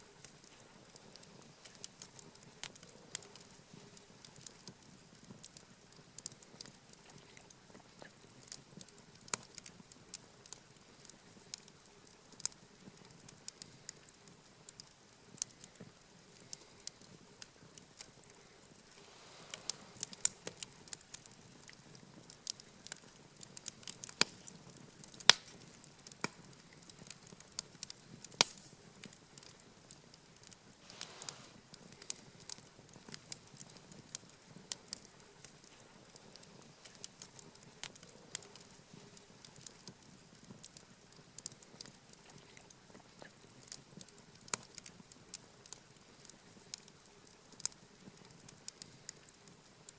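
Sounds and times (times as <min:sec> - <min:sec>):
soft hiss of flames: 0:00.0 - 0:49.9
wood fire crackling and popping: 0:00.0 - 0:49.9.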